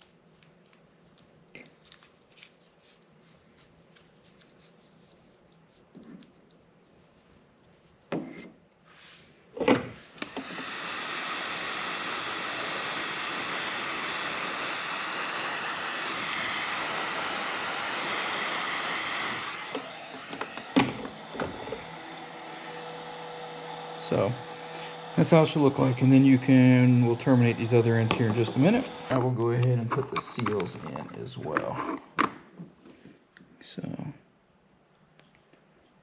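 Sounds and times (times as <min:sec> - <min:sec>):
heat gun blowing: 0:09.9 - 0:30.8
handling knocks and clicks: 0:29.5 - 0:32.4.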